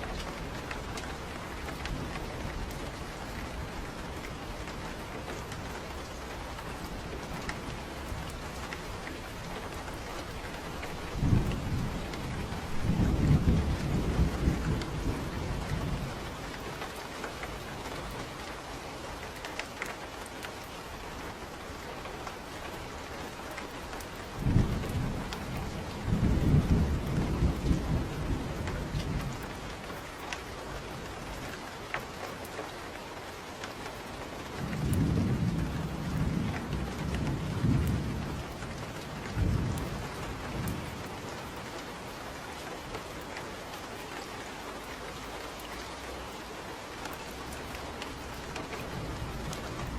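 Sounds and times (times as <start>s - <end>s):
steady rain falling: 0.0s - 49.9s
low rolling thunder: 0.1s - 16.8s, 24.2s - 29.9s, 34.6s - 42.1s, 47.3s - 49.9s.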